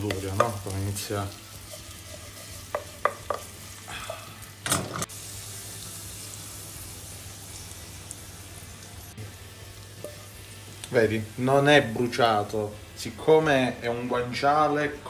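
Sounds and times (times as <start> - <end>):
wooden spatula knocking on pan: 0.0 - 0.6, 2.7 - 3.5
meat sizzling in a pan: 0.0 - 15.0
spatula scraping pan: 1.6 - 3.7.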